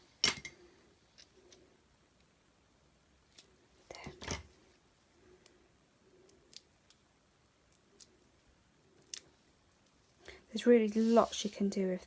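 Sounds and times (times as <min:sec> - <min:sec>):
light paper rustles: 0:10.8 - 0:11.8.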